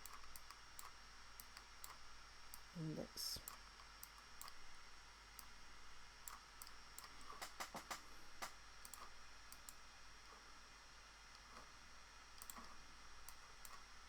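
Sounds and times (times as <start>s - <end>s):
computer mouse clicks: 0.0s - 2.7s, 3.4s - 4.6s, 6.2s - 9.8s, 12.3s - 13.9s.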